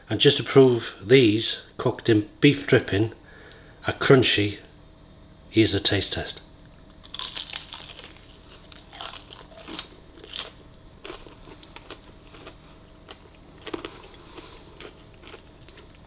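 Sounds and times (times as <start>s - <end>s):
chewing crunchy potato: 7.0s - 16.0s.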